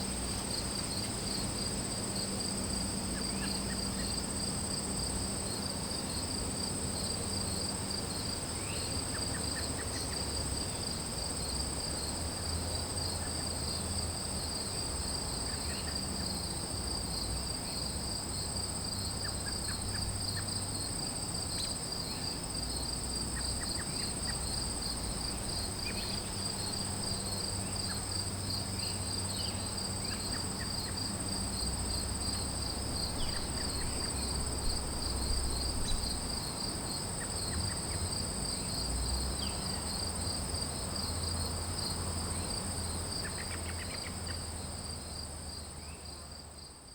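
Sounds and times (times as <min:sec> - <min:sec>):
high insect trill: 0:00.0 - 0:46.9
pulsing insect trill: 0:18.3 - 0:43.8.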